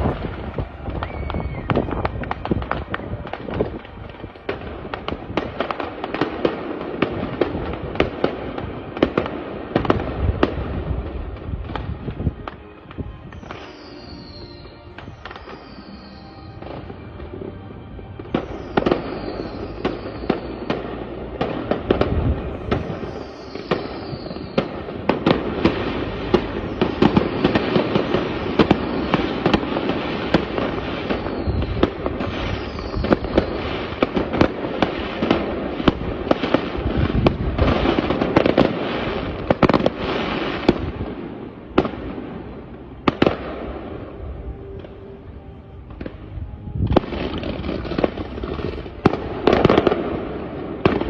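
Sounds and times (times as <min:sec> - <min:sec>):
falling firework whistles: 0:00.0 - 0:06.6, 0:11.6 - 0:17.1, 0:18.2 - 0:41.0
fireworks bangs and crackling: 0:00.0 - 0:51.0.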